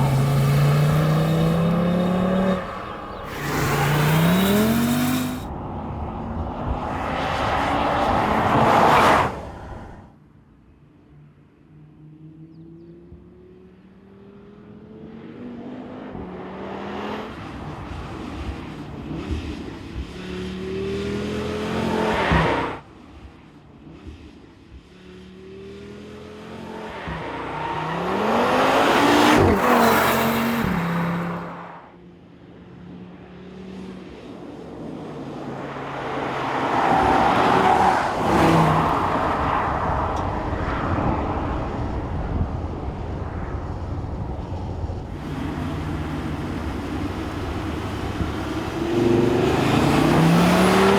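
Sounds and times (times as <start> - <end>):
car engine accelerating hard: 0.0 - 5.5, 26.4 - 31.7, 44.9 - 50.9.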